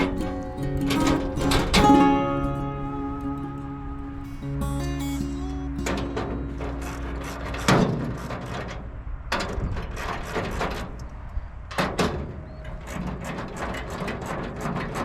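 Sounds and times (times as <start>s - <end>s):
guitar music: 0.0s - 9.0s.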